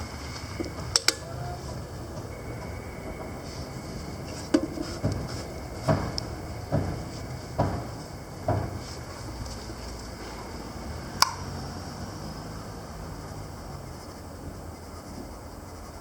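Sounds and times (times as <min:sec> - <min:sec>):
machine drive humming: 0:00.0 - 0:16.0
dull knocks: 0:04.5 - 0:08.9.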